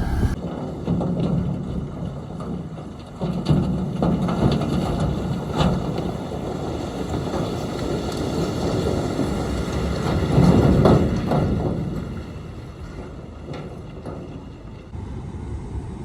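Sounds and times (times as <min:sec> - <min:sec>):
heavy diesel machinery engine: 0:00.0 - 0:00.4
wind on microphone: 0:00.0 - 0:00.4.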